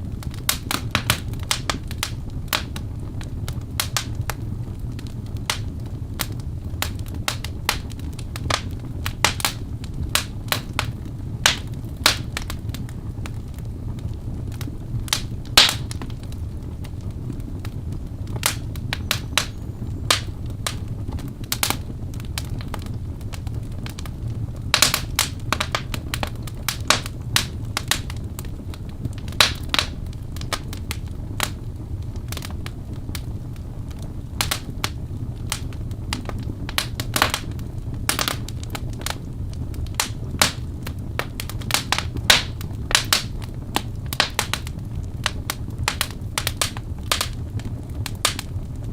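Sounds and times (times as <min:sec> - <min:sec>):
flames rumbling: 0:00.0 - 0:48.9
logs crackling and popping: 0:00.0 - 0:48.9.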